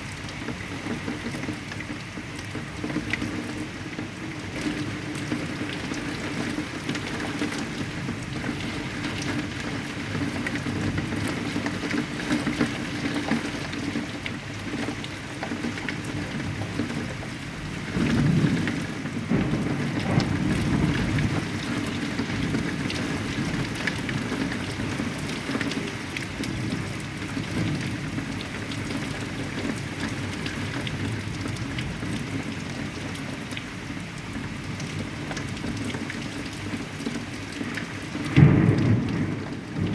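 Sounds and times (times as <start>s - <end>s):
heavy rain falling: 0.0s - 39.9s
thunder rolling: 18.0s - 22.7s, 38.2s - 39.9s.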